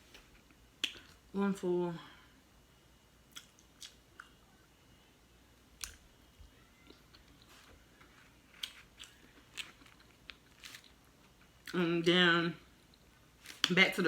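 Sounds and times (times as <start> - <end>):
soft chewing: 3.3 - 4.6, 5.8 - 11.8.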